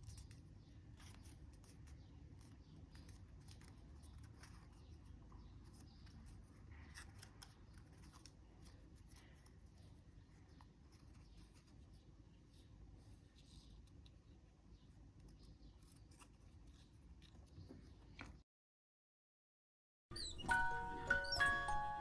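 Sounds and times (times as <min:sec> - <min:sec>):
paper crackling and rustling: 0:00.0 - 0:12.0.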